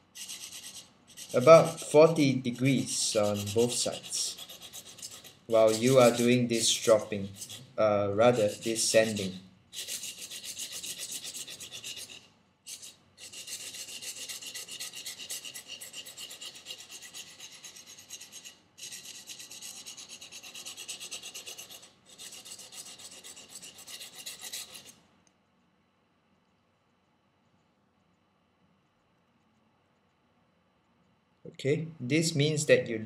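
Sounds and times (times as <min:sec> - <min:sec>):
knife rasping on sandpaper: 0:00.2 - 0:07.7, 0:08.3 - 0:25.0.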